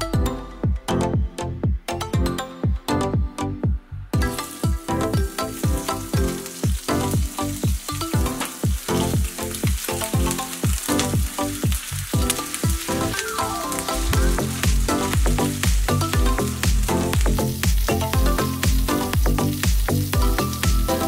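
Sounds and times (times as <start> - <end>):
electronic music with kick drum: 0.0 - 21.0
chicken sizzling in hot oil: 4.2 - 21.0.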